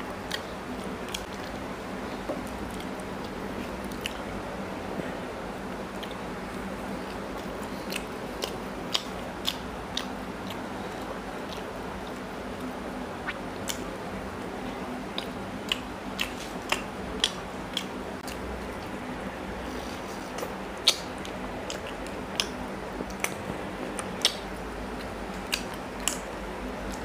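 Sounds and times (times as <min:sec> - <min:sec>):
man chewing food: 0:00.0 - 0:04.4, 0:05.7 - 0:14.0, 0:14.6 - 0:27.0
steady low hum: 0:00.0 - 0:27.0.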